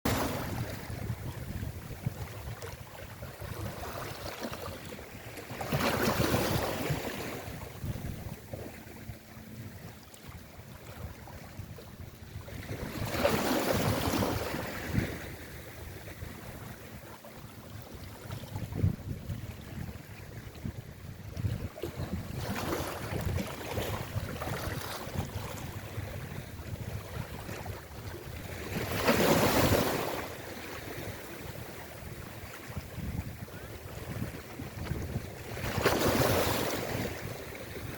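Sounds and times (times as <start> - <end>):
wind buffeting microphone: 0.1 - 37.9.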